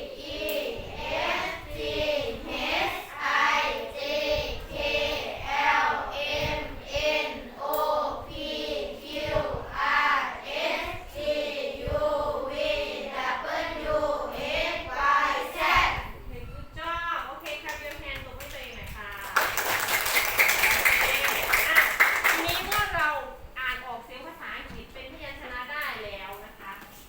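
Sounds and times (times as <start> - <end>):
children singing in unison: 0.0 - 16.1.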